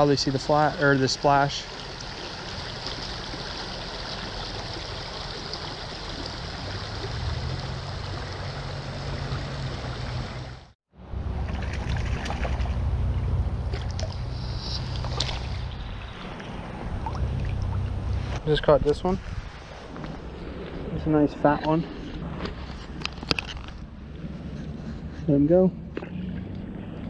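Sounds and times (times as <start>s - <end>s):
stream water rushing: 0.0s - 10.8s, 11.4s - 18.5s
low rumble: 6.2s - 27.0s.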